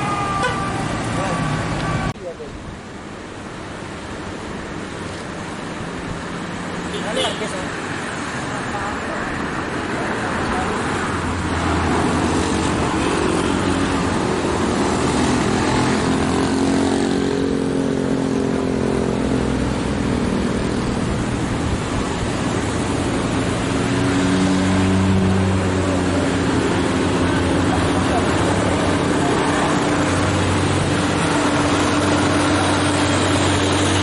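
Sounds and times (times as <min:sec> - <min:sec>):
road noise: 0:00.0 - 0:34.0
truck engine at full throttle: 0:07.5 - 0:34.0.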